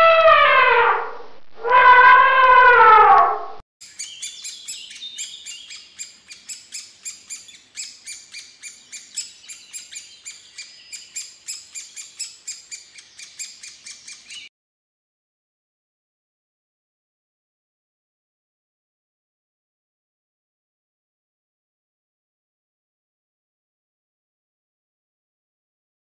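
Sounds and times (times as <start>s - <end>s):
nestlings begging chirps: 3.8s - 14.5s.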